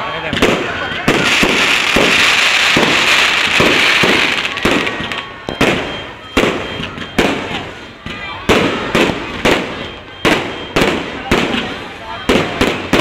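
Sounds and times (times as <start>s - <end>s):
fireworks bangs: 0.0s - 13.0s
fireworks crackling hiss: 0.3s - 5.2s.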